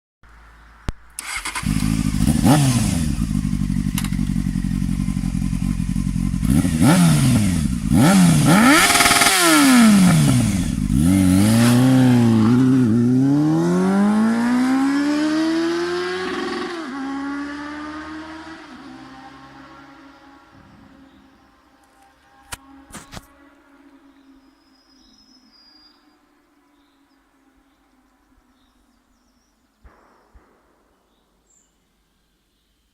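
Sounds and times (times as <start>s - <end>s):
motorcycle engine revving: 1.2s - 23.3s.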